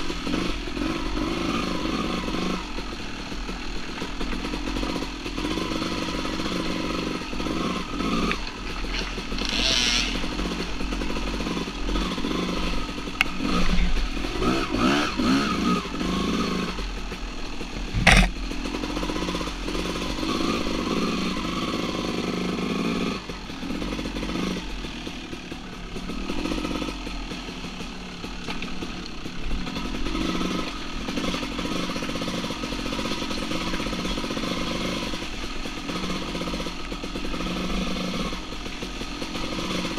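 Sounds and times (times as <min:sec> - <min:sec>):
dirt bike engine revving: 0:00.0 - 0:39.9
sharp knock: 0:18.0 - 0:18.4.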